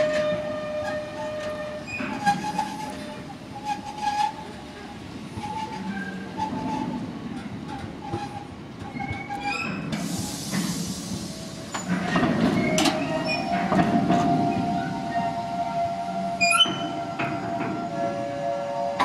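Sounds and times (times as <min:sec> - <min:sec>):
train wheels rumbling: 0:00.0 - 0:19.0
brief hiss: 0:10.0 - 0:11.8.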